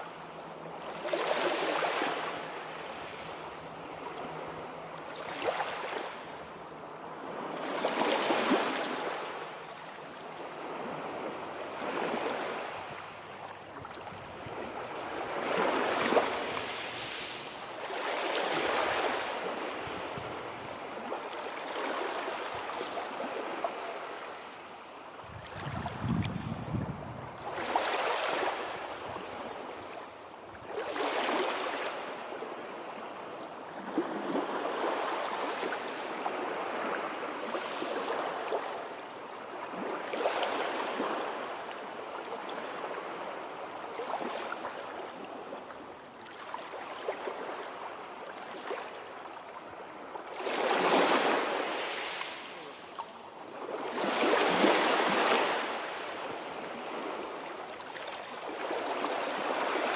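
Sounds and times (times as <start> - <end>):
sea waves breaking: 25.2 - 30.0.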